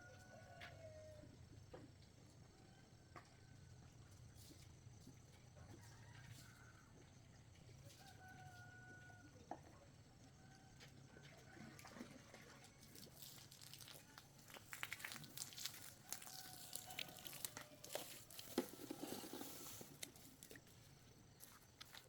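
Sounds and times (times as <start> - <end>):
crinkling rustles: 12.8 - 22.0.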